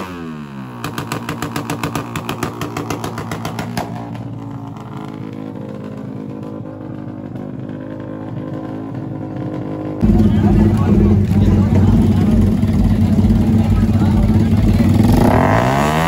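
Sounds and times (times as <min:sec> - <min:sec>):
motorcycle engine revving and idling: 0:00.0 - 0:16.0
exhaust pops: 0:00.8 - 0:15.4.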